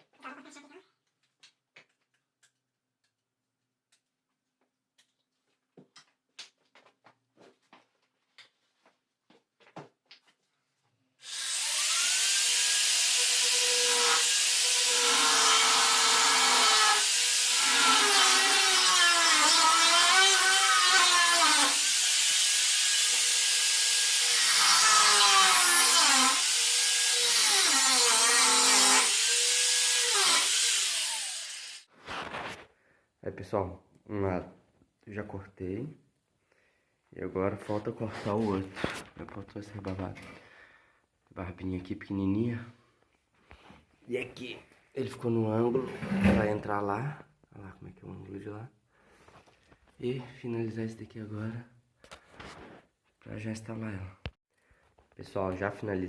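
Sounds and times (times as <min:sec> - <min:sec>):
angle grinder cutting metal: 0:11.2 - 0:31.9.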